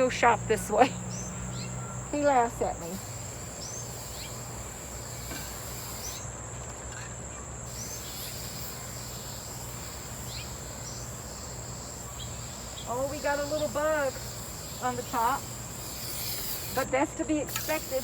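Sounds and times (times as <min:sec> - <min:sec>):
insects calling steadily: 0:00.0 - 0:18.0.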